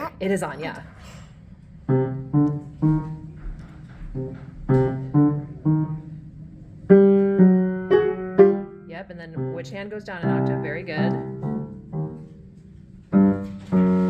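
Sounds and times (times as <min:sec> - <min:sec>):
single piano notes: 0:01.9 - 0:08.9, 0:10.2 - 0:14.0.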